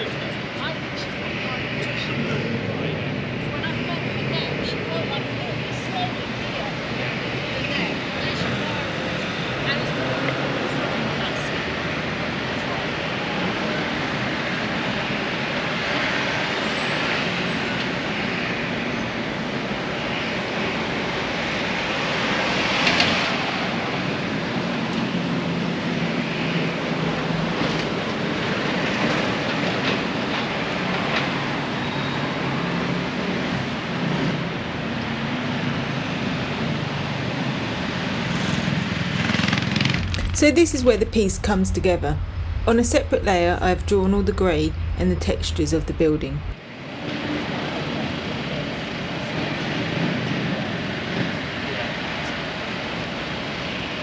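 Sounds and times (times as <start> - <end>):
passing vehicles rumble: 39.0 - 46.6.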